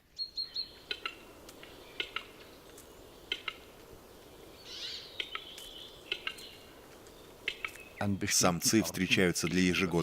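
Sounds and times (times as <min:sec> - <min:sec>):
bird sharp dry clicks: 0:00.9 - 0:03.9, 0:05.1 - 0:08.0.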